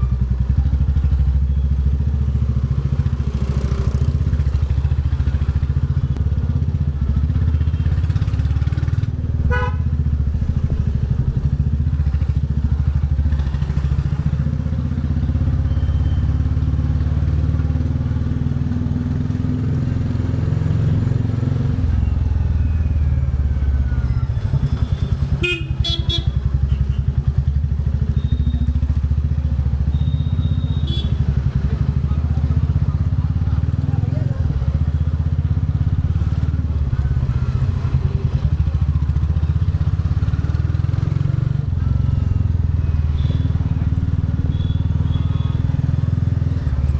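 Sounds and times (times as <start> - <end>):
motorcycle engine running: 0.0 - 46.9
vehicle horn: 9.5 - 9.9, 24.8 - 27.1, 30.1 - 31.3, 44.5 - 45.6.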